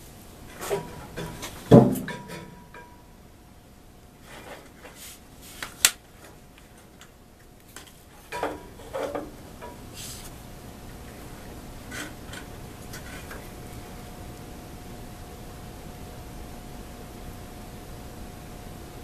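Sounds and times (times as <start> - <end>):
faint steady hum: 0.0 - 19.0
soft scrapes: 4.2 - 5.6, 9.9 - 10.4.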